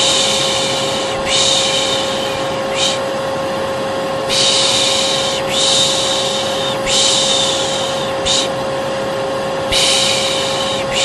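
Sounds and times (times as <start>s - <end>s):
person shushing: 0.0s - 3.1s, 4.3s - 8.6s, 9.7s - 11.0s
hair dryer running: 0.0s - 11.0s.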